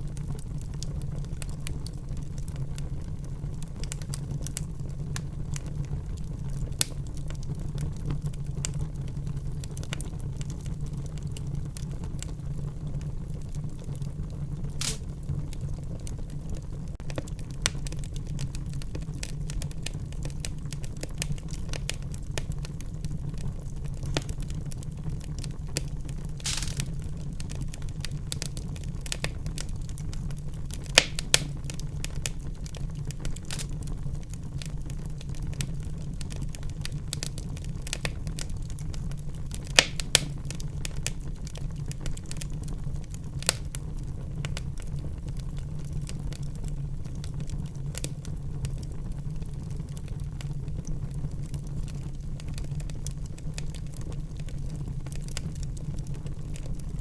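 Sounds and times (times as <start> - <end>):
wood fire crackling: 0.0 - 57.0
loud fire pops: 0.1 - 12.4, 13.0 - 57.0
gas hissing from burning wood: 13.4 - 16.4, 17.1 - 48.3.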